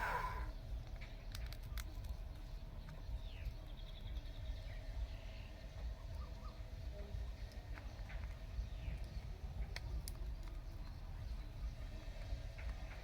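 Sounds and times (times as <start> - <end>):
bird chirps: 1.9 - 10.0.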